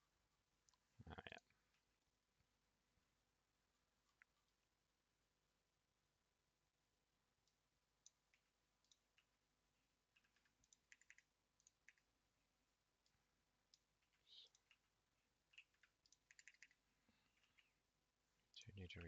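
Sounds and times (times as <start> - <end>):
computer keyboard typing: 10.1 - 12.1, 13.7 - 16.8.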